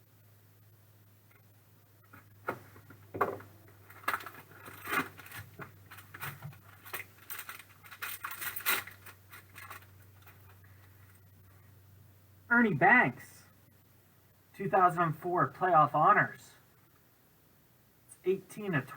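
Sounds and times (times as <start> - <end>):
cards and packaging handled: 3.8 - 11.1.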